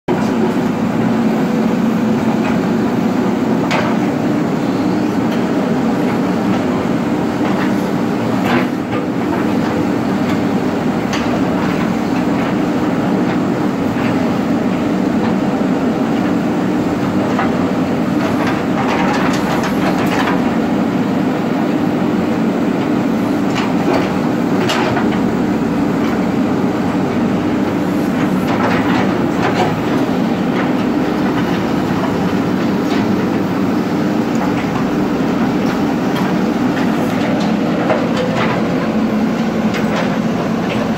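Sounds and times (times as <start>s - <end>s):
diesel engine running: 0.1s - 40.9s
machine knocks and clanks: 3.6s - 4.1s, 17.1s - 20.6s, 23.4s - 26.4s, 27.1s - 40.9s.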